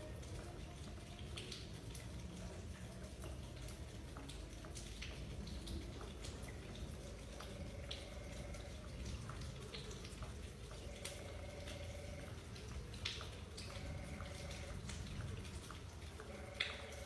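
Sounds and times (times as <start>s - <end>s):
rain dripping: 0.0s - 17.0s
faint steady hum: 4.9s - 17.0s.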